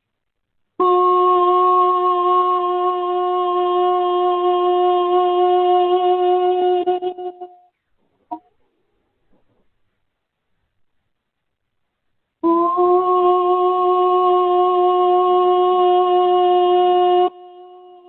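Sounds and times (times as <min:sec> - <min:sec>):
wind instrument long note: 0:12.4 - 0:18.0.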